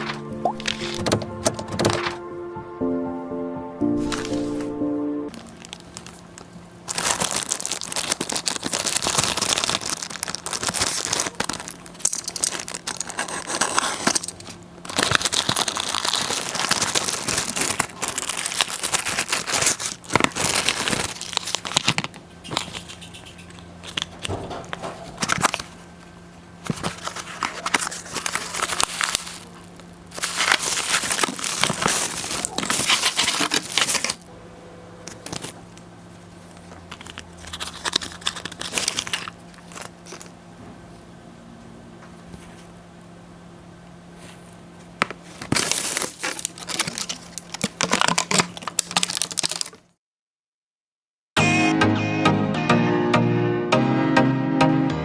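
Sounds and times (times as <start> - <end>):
low hum: 0.0 - 44.6
plastic wrapping crinkling: 5.3 - 34.3, 35.1 - 40.4, 45.0 - 49.9.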